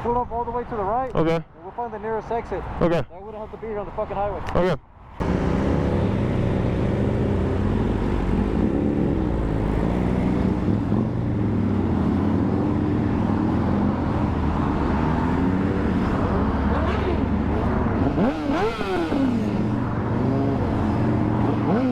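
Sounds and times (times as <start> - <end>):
road noise: 0.0 - 21.9
motorcycle engine running steadily: 5.2 - 14.3.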